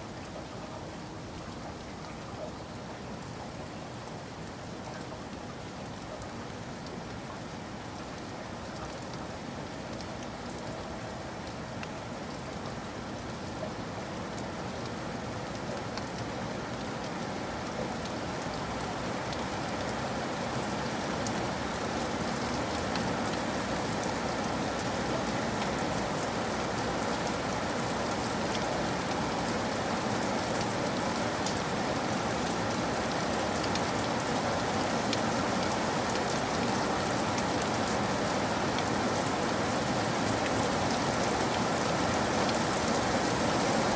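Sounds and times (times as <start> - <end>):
heavy rain falling: 3.4 - 43.9.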